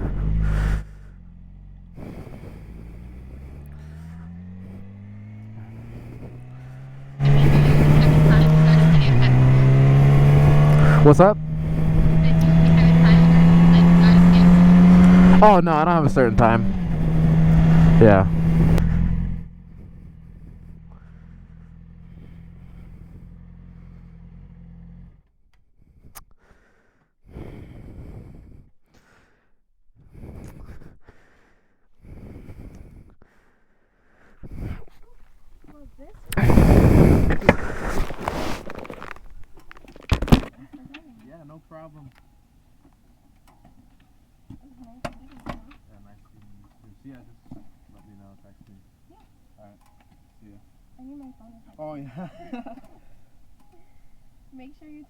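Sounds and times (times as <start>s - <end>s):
second engine rising in pitch: 0.0s - 25.2s, 35.8s - 40.4s
vehicle engine running low: 0.0s - 25.3s, 34.5s - 55.0s
rustling noise: 36.2s - 40.6s.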